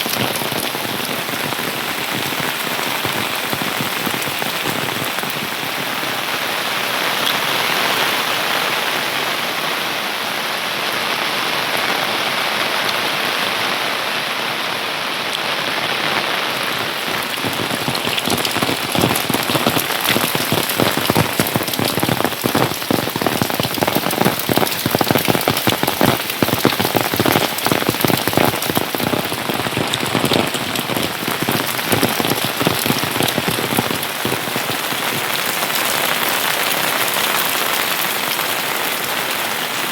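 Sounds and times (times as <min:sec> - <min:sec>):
sharp raindrop hits: 0:00.0 - 0:06.4, 0:16.5 - 0:39.9
steady rain falling: 0:00.0 - 0:39.9.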